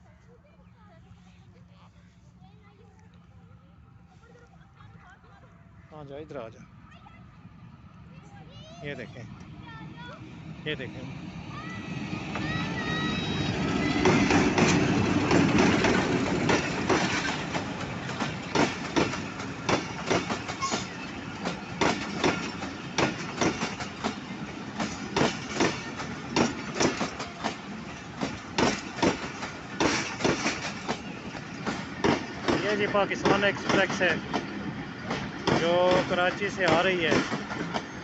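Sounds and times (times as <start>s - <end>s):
diesel locomotive rumble: 6.6s - 38.0s
train wheels clattering over rail joints: 13.6s - 38.0s.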